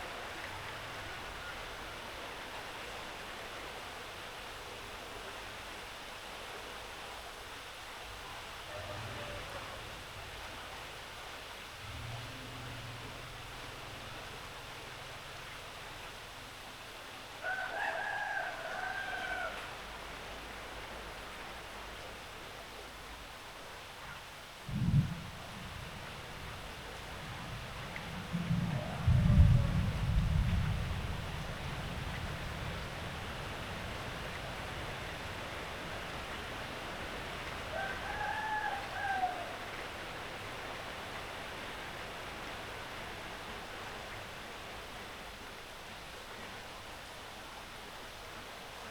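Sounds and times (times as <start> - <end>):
steady rain falling: 0.0 - 48.9
rooster crowing: 17.4 - 19.8, 37.7 - 39.8.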